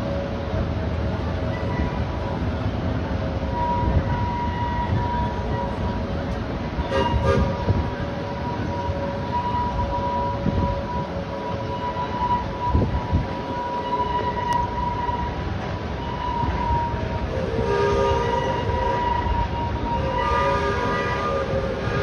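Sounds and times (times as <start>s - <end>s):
train cars rolling with rumble: 0.0s - 22.0s.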